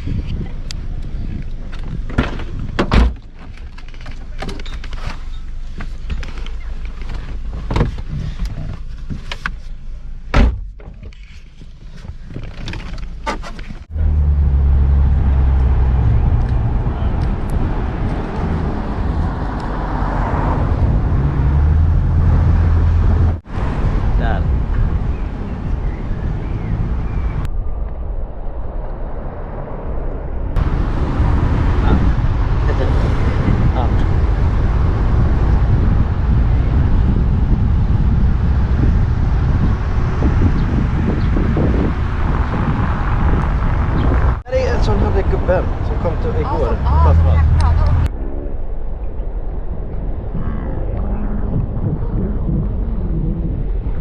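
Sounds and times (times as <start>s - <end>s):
road and wind noise: 0.0s - 54.0s
low engine hum: 13.8s - 54.0s.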